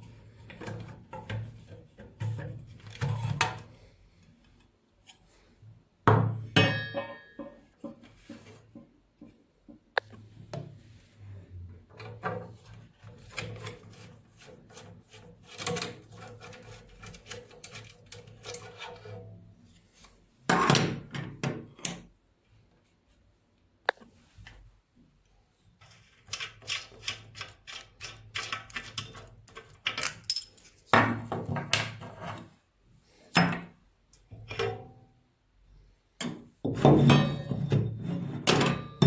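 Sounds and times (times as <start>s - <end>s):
tools knocking and clattering: 6.1s - 9.9s, 36.2s - 39.0s.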